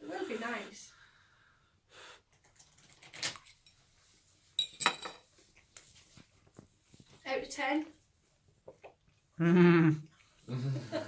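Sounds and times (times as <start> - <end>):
cutlery clinking on a plate: 4.6 - 5.3.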